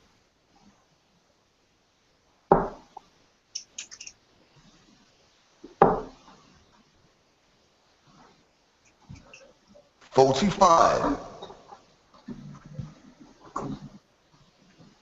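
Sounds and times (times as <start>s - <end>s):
darts thudding into dartboard: 2.5s - 2.8s.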